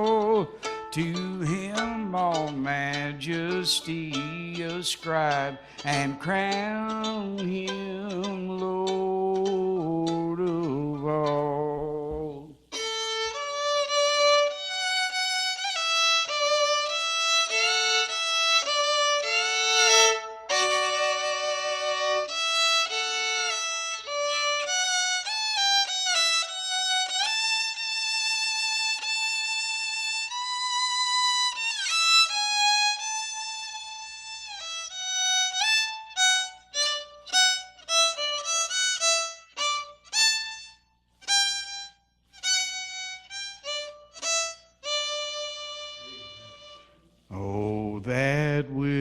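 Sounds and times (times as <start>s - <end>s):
melody instrument playing hymn tune: 0.0s - 12.4s.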